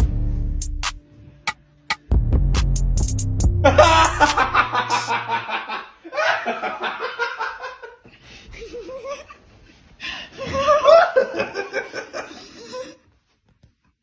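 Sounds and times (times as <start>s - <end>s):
people laughing: 3.6s - 9.4s, 10.3s - 13.1s.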